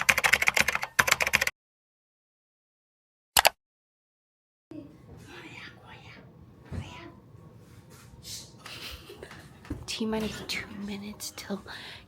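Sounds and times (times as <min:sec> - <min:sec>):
computer keyboard typing: 0:00.0 - 0:01.5.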